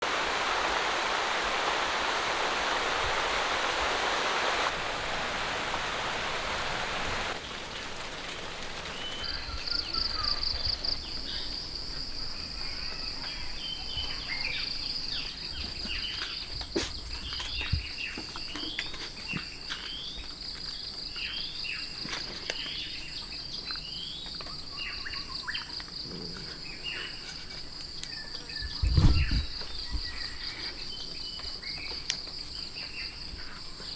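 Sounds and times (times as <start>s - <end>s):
steady rushing noise: 0.0s - 7.9s
birds chirping: 6.2s - 33.9s
insect trill: 8.9s - 15.6s.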